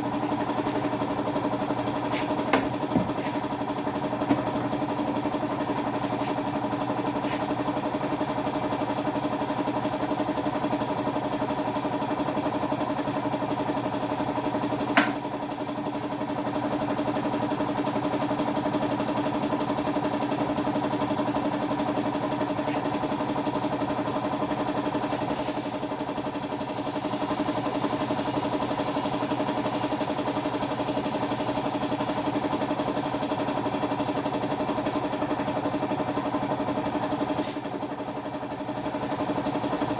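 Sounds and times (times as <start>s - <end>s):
small motor humming: 22.2s - 36.2s.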